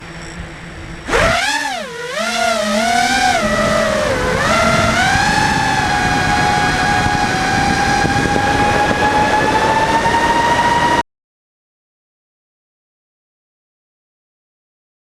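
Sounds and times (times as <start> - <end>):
quadcopter motors whining: 0.0 - 11.0.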